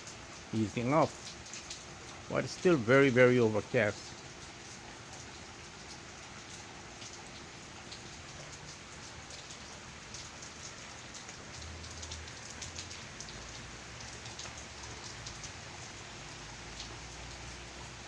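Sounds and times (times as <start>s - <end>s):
rain drops tapping: 0.0s - 18.0s
steady rain patter: 0.0s - 18.0s.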